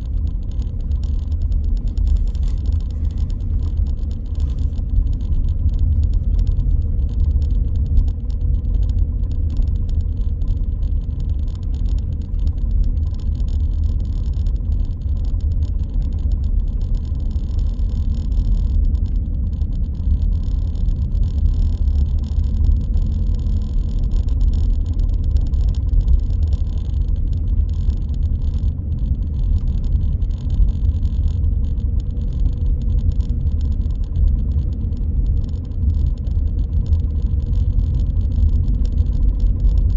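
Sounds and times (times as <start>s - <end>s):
engine and road rumble: 0.0s - 39.9s
faint steady hum: 0.0s - 39.9s.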